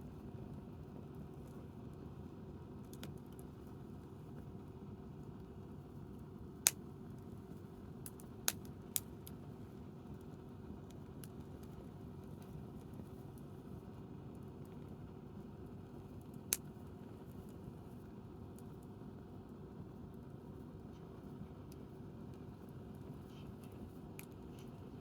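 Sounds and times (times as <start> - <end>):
campfire crackling and popping: 8.0 - 9.4, 24.2 - 24.4.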